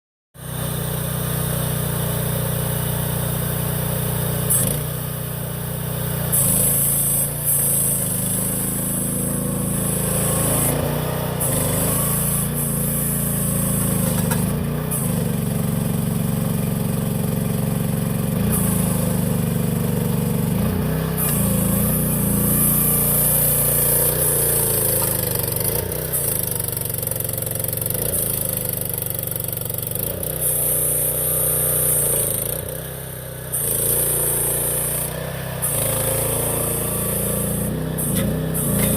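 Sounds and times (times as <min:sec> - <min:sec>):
gasoline engine running: 0:00.4 - 0:38.9
hiss: 0:06.2 - 0:15.2, 0:21.2 - 0:27.1, 0:30.3 - 0:32.6, 0:33.5 - 0:38.9.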